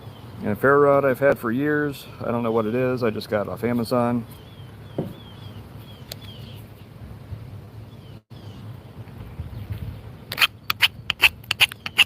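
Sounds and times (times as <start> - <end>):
low outdoor rumble: 0.0 - 11.9
knife scraping a ferro rod: 10.3 - 12.0.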